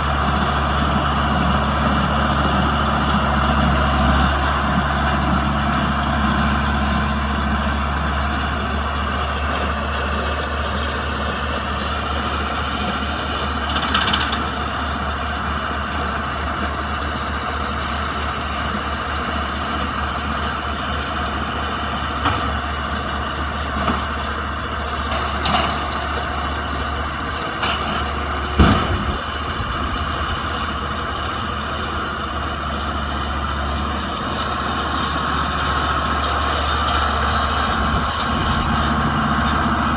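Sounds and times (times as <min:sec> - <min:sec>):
tractor diesel engine running: 0:00.0 - 0:39.9
knocks and clanks: 0:25.1 - 0:26.3, 0:27.4 - 0:31.0.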